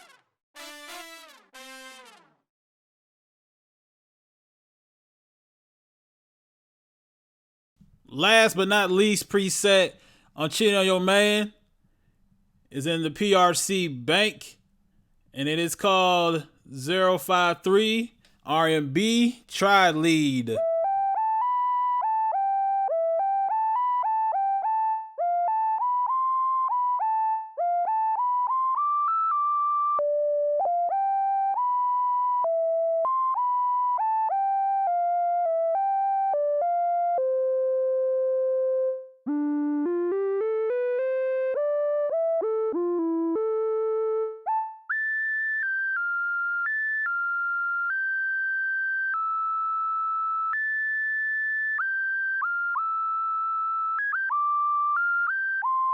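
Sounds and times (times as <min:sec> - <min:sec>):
synth lead melody: 0:20.6 - 0:55.9.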